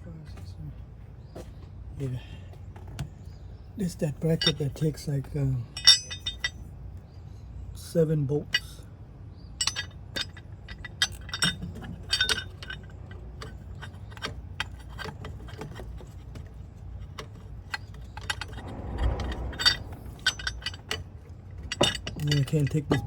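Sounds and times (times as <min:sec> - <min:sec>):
metal tools and bolts clinking: 0:04.2 - 0:06.6, 0:08.4 - 0:08.8, 0:09.6 - 0:23.0.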